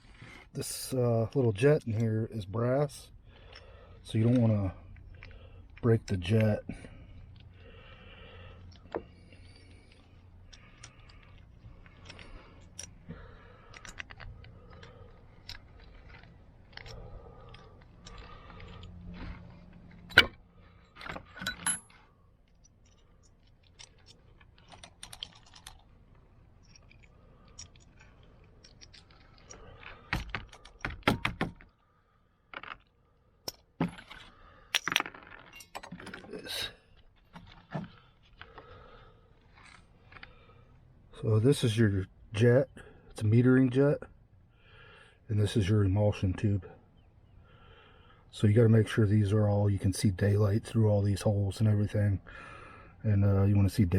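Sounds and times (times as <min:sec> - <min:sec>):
metal parts and tools clinking: 0:08.7 - 0:31.8, 0:32.5 - 0:38.7.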